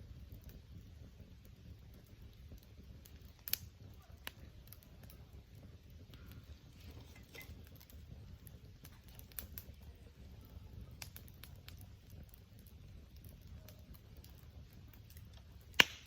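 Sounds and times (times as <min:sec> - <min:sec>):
campfire crackling: 0:00.0 - 0:16.0
low steady rumble: 0:00.0 - 0:16.0.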